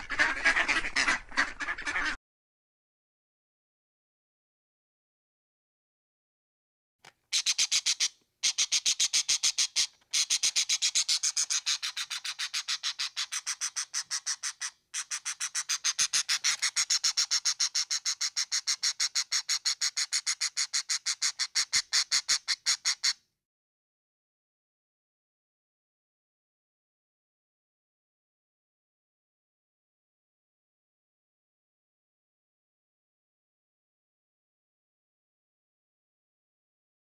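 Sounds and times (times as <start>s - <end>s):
bird rapid high chirps: 7.3s - 23.1s.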